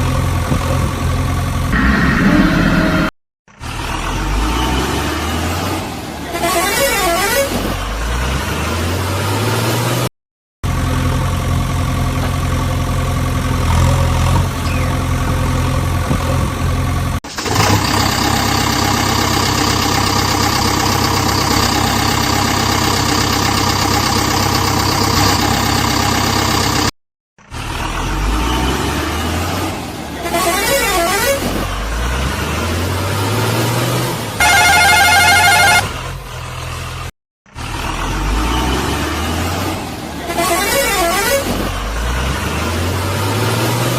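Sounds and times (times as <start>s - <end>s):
heavy vehicle engine revving: 0.0s - 26.9s, 27.5s - 43.9s
loud horn tone: 1.7s - 3.1s, 6.3s - 7.6s, 30.2s - 31.5s, 34.4s - 36.0s, 40.3s - 41.6s.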